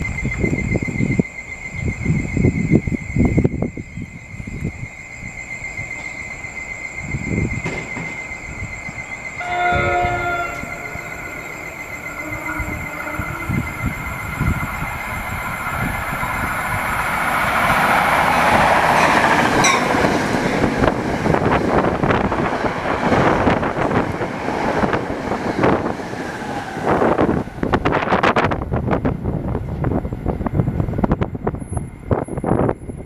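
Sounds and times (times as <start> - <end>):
train rushing past: 5.2 - 33.0
fast clatter of train wheels: 7.1 - 8.6.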